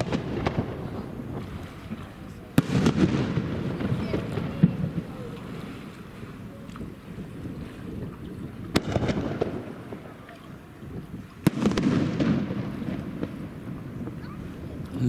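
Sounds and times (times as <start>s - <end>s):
fireworks bang: 0.0s - 1.3s, 1.9s - 5.1s, 8.7s - 10.2s, 11.4s - 14.2s
fireworks rumbling crackle: 0.0s - 10.2s, 10.9s - 15.0s.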